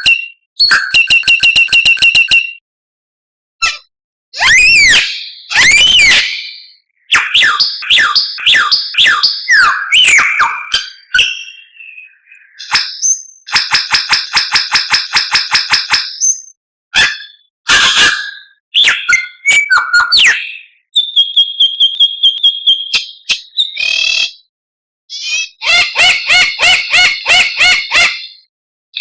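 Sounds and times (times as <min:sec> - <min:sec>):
songbird singing: 0:04.8 - 0:13.5.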